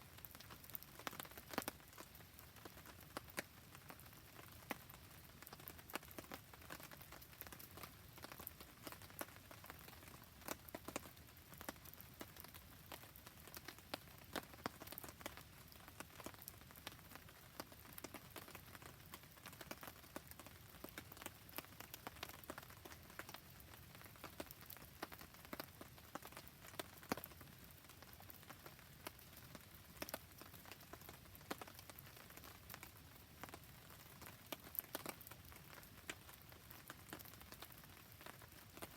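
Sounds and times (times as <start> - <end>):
campfire crackling: 0.1 - 38.9.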